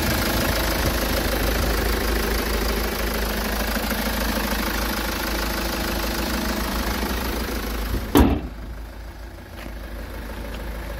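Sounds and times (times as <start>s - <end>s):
car engine idling: 0.0s - 10.9s
car bonnet slamming shut: 8.0s - 8.7s.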